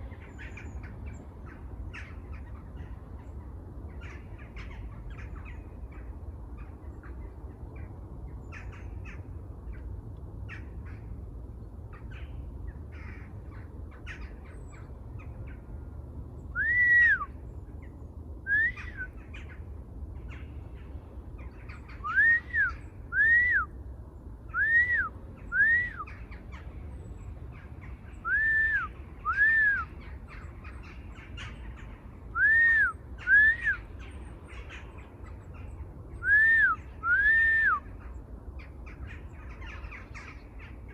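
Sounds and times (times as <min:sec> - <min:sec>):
birds whistling: 0:16.5 - 0:17.4, 0:18.5 - 0:19.5, 0:21.7 - 0:23.8, 0:24.5 - 0:26.4, 0:28.1 - 0:31.6, 0:32.3 - 0:34.2, 0:36.1 - 0:38.0
birds chirping rapidly: 0:24.2 - 0:40.9.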